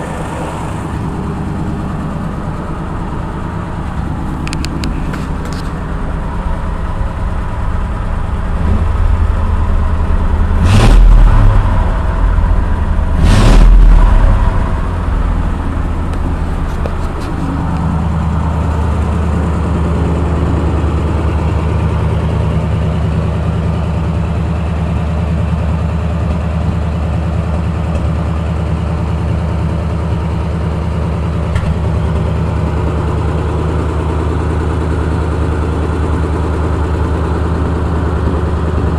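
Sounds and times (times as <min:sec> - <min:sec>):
truck engine revving and idling: 0:00.0 - 0:38.9.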